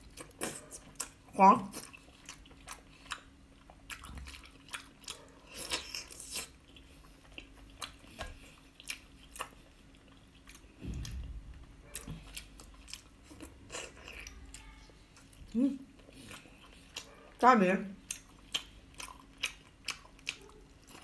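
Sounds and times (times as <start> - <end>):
chewing and biting: 0.0 - 14.6, 15.2 - 17.4, 18.0 - 21.0.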